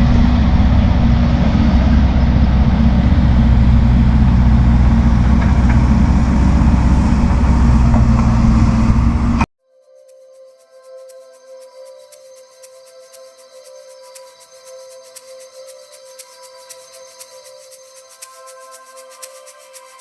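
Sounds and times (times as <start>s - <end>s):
diesel engine droning: 0.0s - 9.5s.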